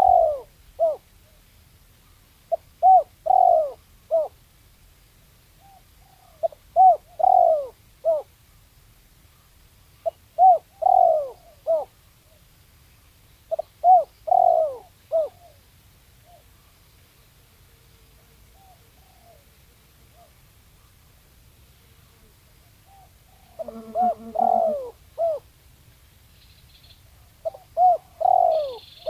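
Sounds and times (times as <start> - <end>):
dove cooing: 0.0 - 1.0, 2.5 - 4.4, 5.6 - 8.3, 10.0 - 11.9, 13.5 - 15.6, 18.5 - 19.5, 22.9 - 25.4, 27.1 - 29.0.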